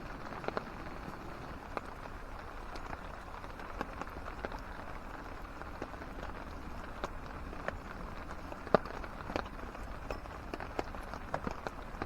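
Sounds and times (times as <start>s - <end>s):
raindrops ticking: 0.0s - 12.0s
steady rain: 0.0s - 12.0s.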